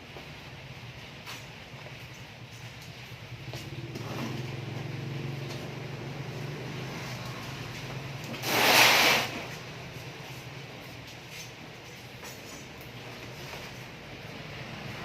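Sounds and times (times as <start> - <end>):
loud burst of hiss: 8.3 - 9.6.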